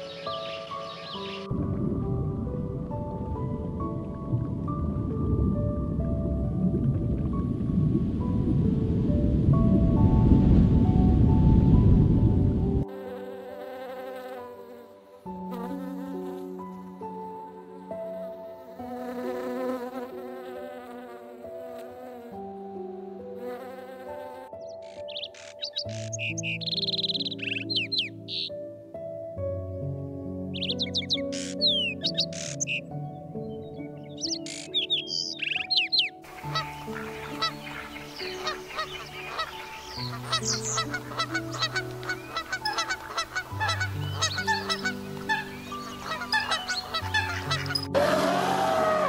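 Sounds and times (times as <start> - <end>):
soft background music: 0.0 - 49.0
honeybee buzzing: 12.9 - 25.2
geese honking and cackling: 36.3 - 49.0.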